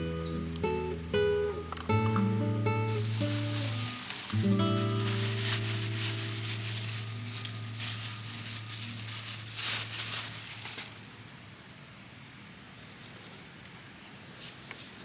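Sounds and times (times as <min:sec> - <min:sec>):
rough rustling or scraping: 0:02.8 - 0:11.2.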